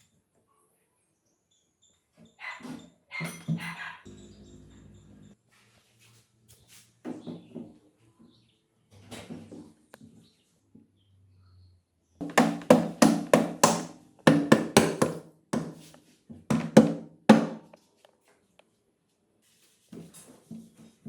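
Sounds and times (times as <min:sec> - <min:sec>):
hammer striking metal part: 0:12.2 - 0:15.9, 0:16.5 - 0:17.7.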